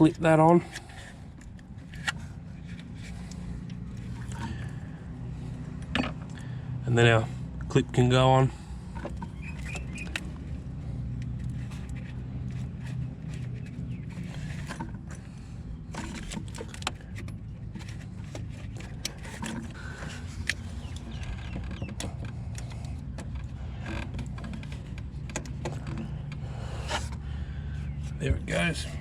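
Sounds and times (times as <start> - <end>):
low hum: 0.1 - 29.0.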